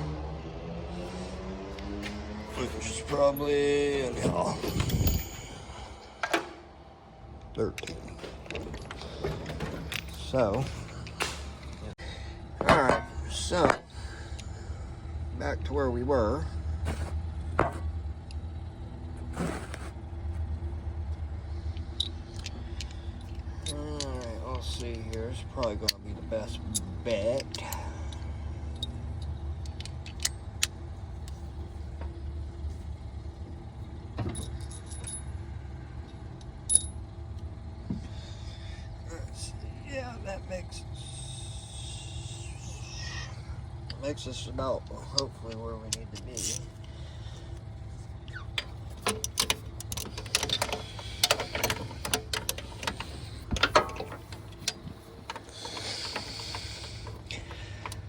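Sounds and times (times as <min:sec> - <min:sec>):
steady low hum: 0:00.0 - 0:58.0
steel tools clinking against metal: 0:03.3 - 0:06.4.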